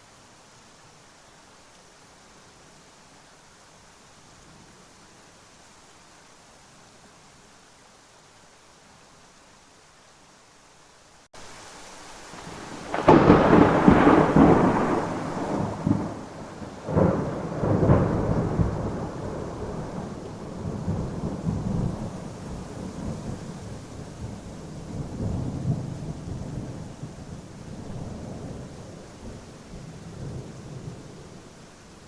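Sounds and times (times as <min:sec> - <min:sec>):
rain falling steadily: 0:00.0 - 0:32.0
low rolling thunder rumbles: 0:12.3 - 0:31.6
sharp thunderclap: 0:12.4 - 0:22.1.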